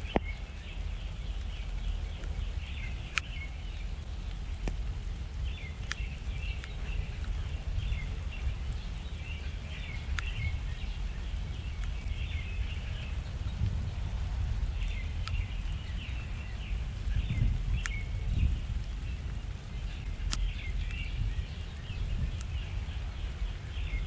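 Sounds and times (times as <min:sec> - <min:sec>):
small birds chirping: 0:00.0 - 0:24.0
steady low rumble: 0:00.0 - 0:24.0
sharp clicks: 0:01.3 - 0:03.5, 0:04.2 - 0:07.4, 0:10.0 - 0:10.4, 0:11.7 - 0:12.3, 0:14.8 - 0:15.8, 0:17.8 - 0:18.1, 0:18.8 - 0:21.2.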